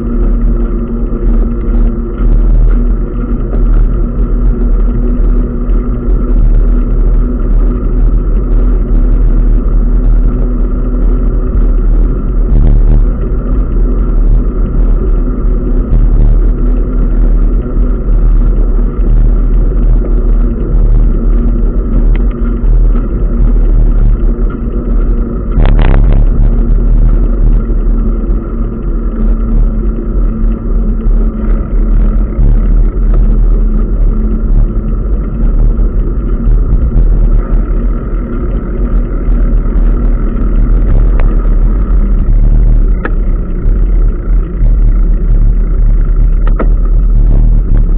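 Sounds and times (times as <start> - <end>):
steady hum: 0.0 - 47.9
wind and road noise rumble: 0.0 - 47.9.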